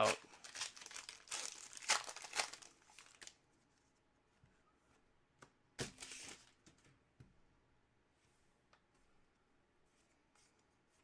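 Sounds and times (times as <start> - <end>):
wrapper crinkling and tearing: 0.0 - 3.4.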